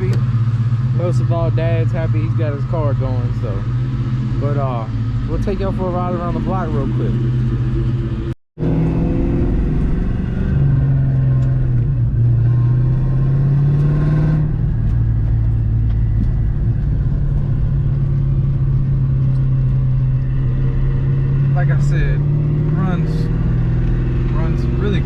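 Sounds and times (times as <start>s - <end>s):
car engine at low revs: 0.0s - 25.0s.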